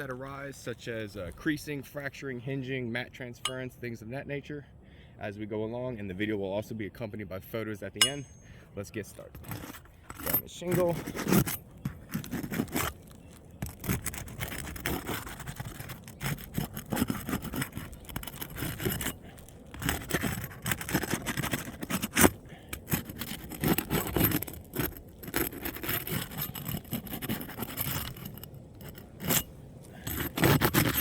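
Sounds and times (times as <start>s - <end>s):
tools scraping under roof shingles: 8.0s - 31.0s.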